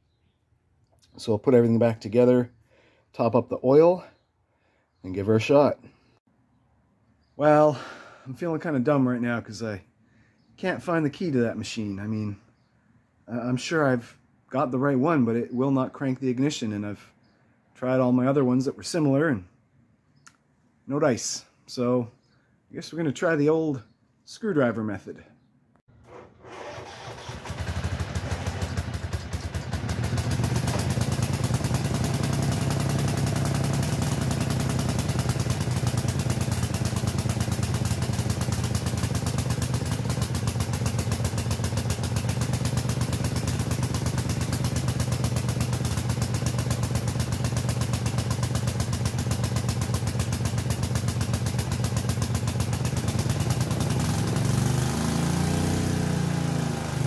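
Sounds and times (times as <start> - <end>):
small tractor engine running: 25.9 - 57.0.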